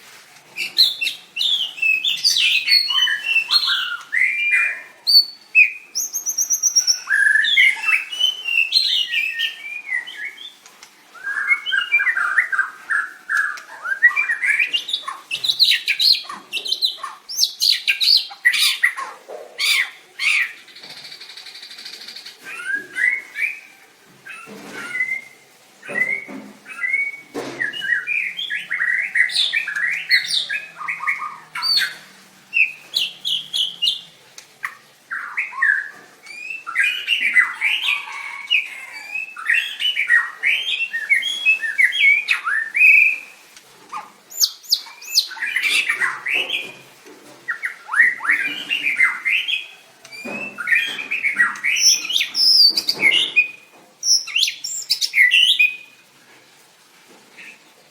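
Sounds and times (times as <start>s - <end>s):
bird singing whistled phrases: 0.7s - 10.6s, 11.2s - 16.2s, 24.3s - 34.0s, 35.1s - 43.3s, 47.5s - 55.9s.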